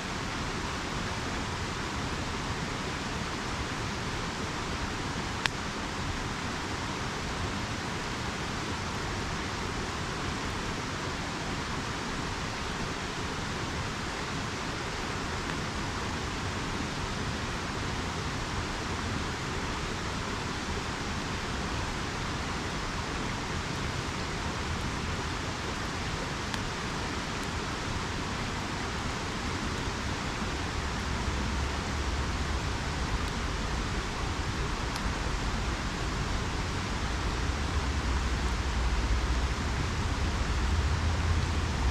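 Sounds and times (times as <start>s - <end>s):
river water rushing: 0.0s - 41.9s
low rumble: 37.1s - 41.9s.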